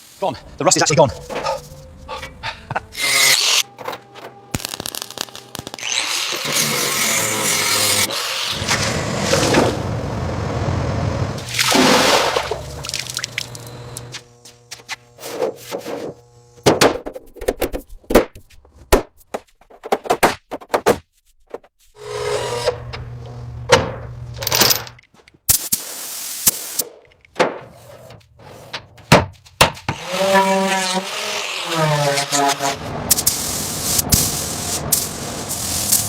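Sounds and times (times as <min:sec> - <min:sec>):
machine hum: 0:00.3 - 0:16.8
hissing burst: 0:33.1 - 0:36.0.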